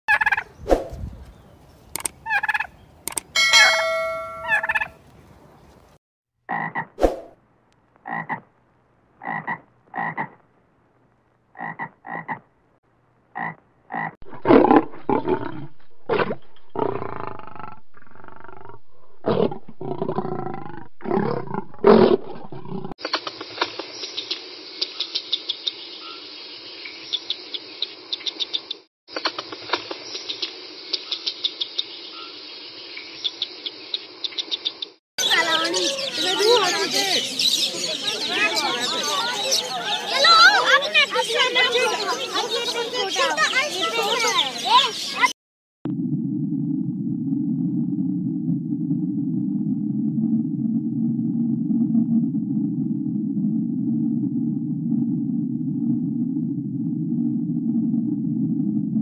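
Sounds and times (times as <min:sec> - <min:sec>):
turkeys calling: 0:00.1 - 0:00.5, 0:02.2 - 0:02.8, 0:03.4 - 0:05.0
lion roaring: 0:14.2 - 0:22.9.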